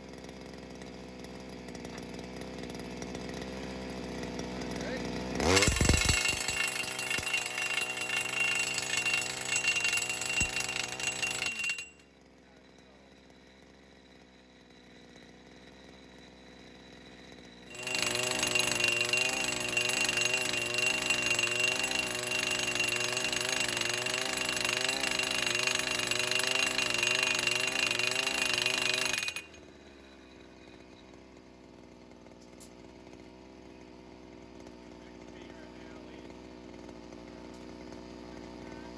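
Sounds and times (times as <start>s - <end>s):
pile driver hammering post: 5.4s - 12.0s, 17.7s - 29.7s.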